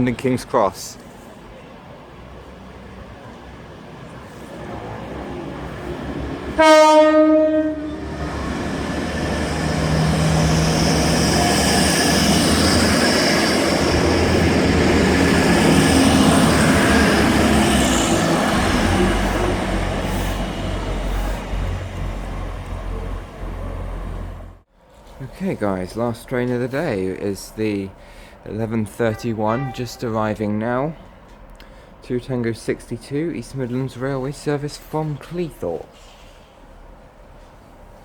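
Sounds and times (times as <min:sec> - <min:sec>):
train engine and wheel noise: 0:00.0 - 0:38.0
train horn blast: 0:06.6 - 0:08.0, 0:29.0 - 0:30.8.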